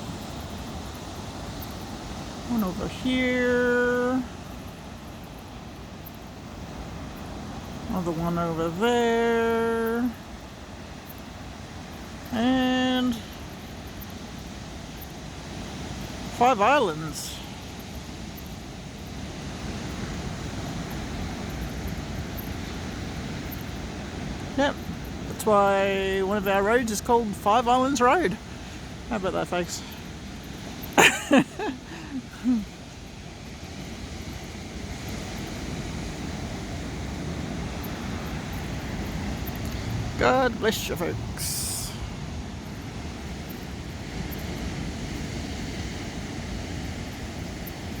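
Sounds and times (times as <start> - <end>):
ocean surf: 0.0 - 48.0
wind rumble on microphone: 33.0 - 40.2
wind buffeting microphone: 33.0 - 48.0.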